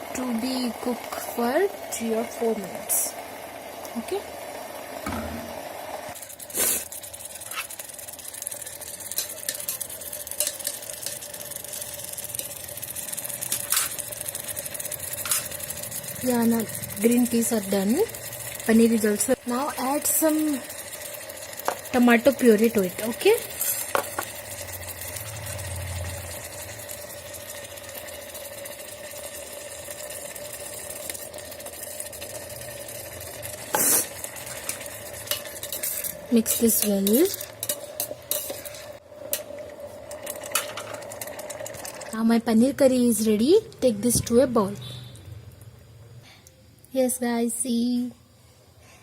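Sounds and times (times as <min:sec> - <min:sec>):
curry bubbling and sizzling in pan: 0:00.0 - 0:45.8
mechanical motor hum: 0:07.2 - 0:46.2.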